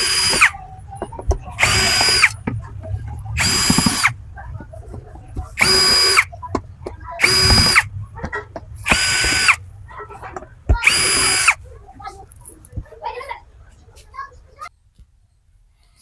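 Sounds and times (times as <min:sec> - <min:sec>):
cordless drill bursts: 0:00.0 - 0:04.4, 0:05.4 - 0:11.7.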